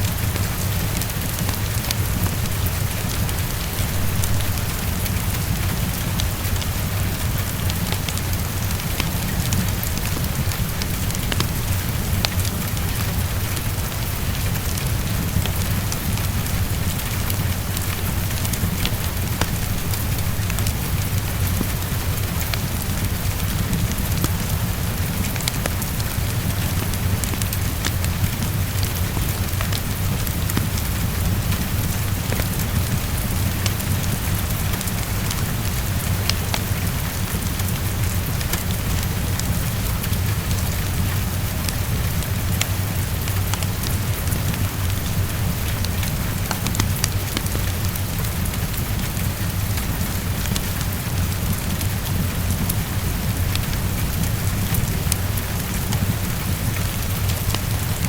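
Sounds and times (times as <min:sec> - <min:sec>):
heavy rain against a window: 0:00.0 - 0:58.0
steady low rumble: 0:00.0 - 0:58.0
wood fire crackling: 0:00.0 - 0:58.0.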